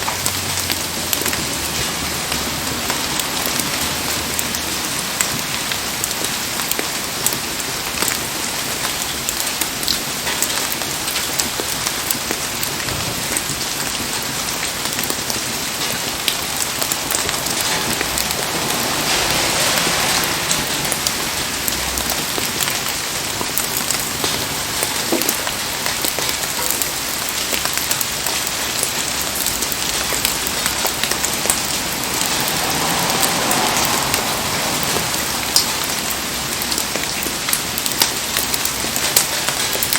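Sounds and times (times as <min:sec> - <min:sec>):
heavy rain hissing: 0:00.0 - 0:39.9
rain drops ticking: 0:00.0 - 0:39.9.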